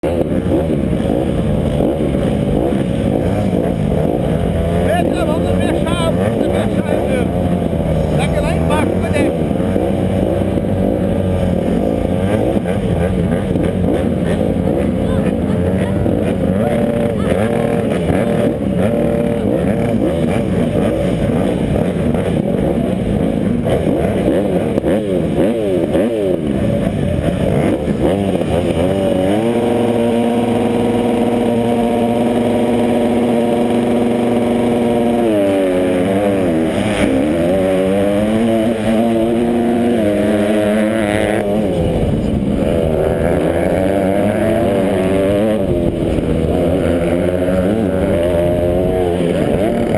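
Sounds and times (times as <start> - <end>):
motocross engines revving: 0.0 - 49.9.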